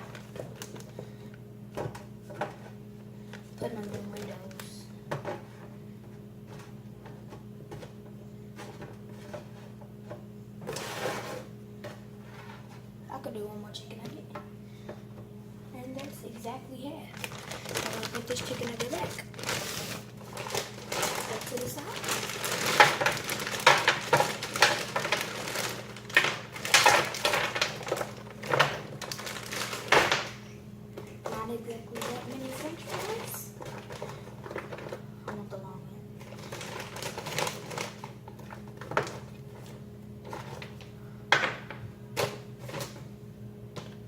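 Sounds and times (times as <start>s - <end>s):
appliance hum: 0.0s - 44.0s
nuggets tapping on a pan: 22.6s - 30.4s.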